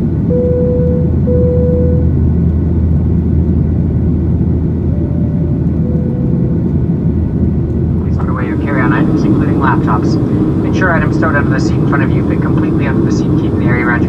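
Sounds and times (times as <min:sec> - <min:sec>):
airplane cabin rumble: 0:00.0 - 0:14.0.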